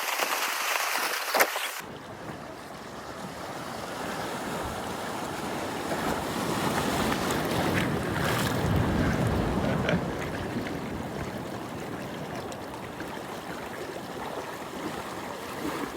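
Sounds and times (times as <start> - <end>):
sea waves washing: 1.3 - 15.9
wind buffeting microphone: 1.8 - 13.6.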